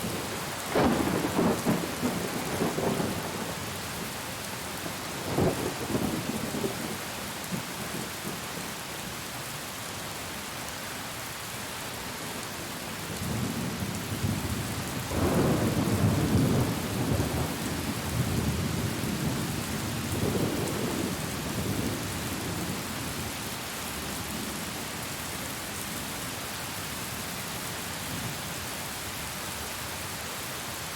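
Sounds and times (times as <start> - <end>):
heavy rain: 0.0 - 30.9
thunder rumbling: 14.2 - 19.4.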